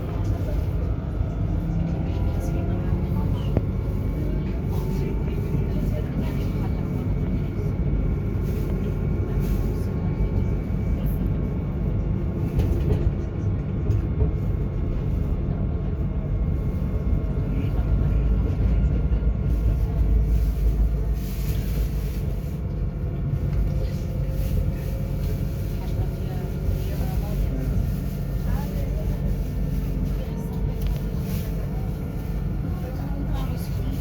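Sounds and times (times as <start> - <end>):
tram rumbling on rails: 0.0 - 34.0.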